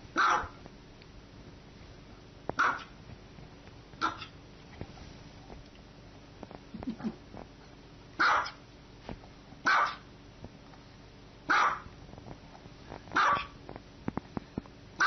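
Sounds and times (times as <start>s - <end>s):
small dog barking: 0.1s - 0.6s, 2.6s - 3.0s, 4.0s - 4.4s, 8.2s - 8.6s, 9.6s - 10.1s, 11.5s - 11.9s, 13.2s - 13.6s.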